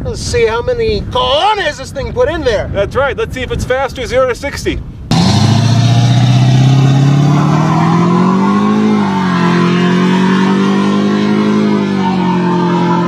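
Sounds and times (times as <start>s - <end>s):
diesel truck engine accelerating: 5.1s - 13.0s.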